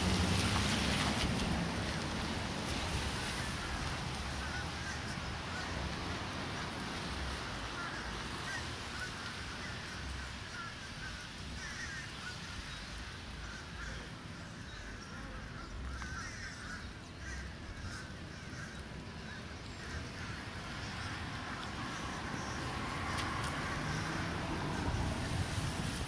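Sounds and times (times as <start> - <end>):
birds chirping: 7.7 - 23.1.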